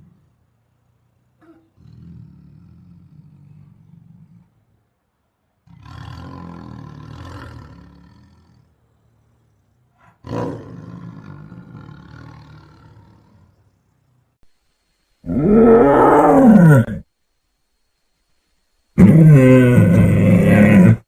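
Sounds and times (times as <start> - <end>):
tiger roaring: 1.3 - 4.6, 5.6 - 13.8, 15.2 - 17.1, 19.0 - 21.0.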